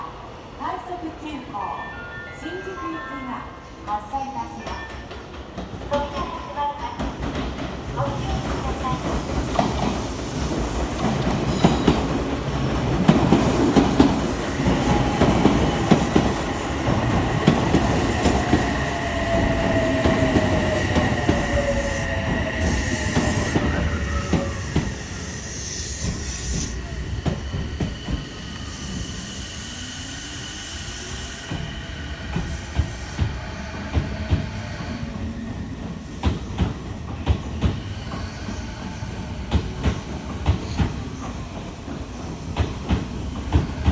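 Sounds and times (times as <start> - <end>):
train wheels squealing: 8.8 - 12.3, 13.3 - 42.5
train motors whining: 9.5 - 36.7.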